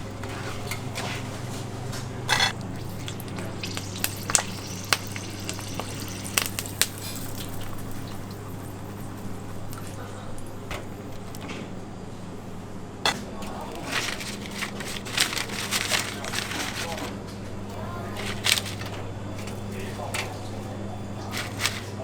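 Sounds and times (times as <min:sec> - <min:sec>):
kitchen clicks and clatters: 0:00.0 - 0:12.0, 0:13.0 - 0:22.0
low kitchen hum: 0:00.0 - 0:22.0
frying sizzle: 0:02.2 - 0:09.9.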